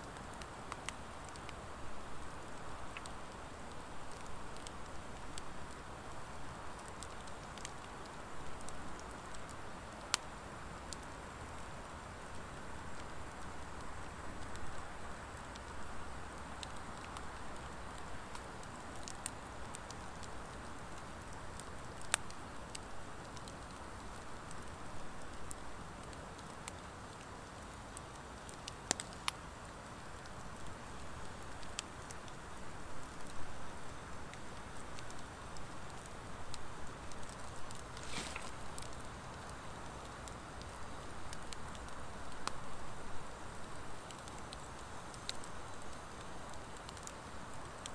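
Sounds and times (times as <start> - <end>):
fire crackling and popping: 0.0 - 47.9
soft rush of flames: 37.0 - 40.8.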